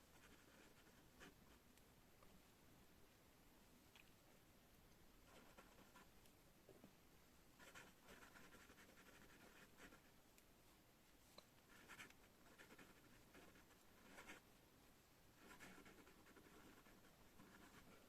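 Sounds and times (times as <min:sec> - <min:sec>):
pen scratching on paper: 0:00.1 - 0:01.4, 0:07.6 - 0:10.0, 0:11.7 - 0:14.4, 0:15.4 - 0:18.0.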